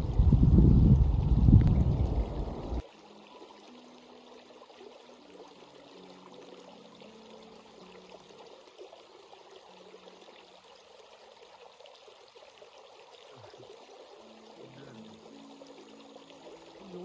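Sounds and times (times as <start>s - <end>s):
loud low rumble: 0.0s - 2.8s
faint stream running: 0.0s - 17.0s.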